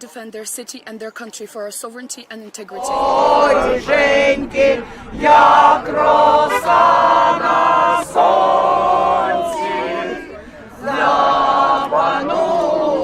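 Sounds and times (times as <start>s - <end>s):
crowd singing together: 2.8s - 13.0s.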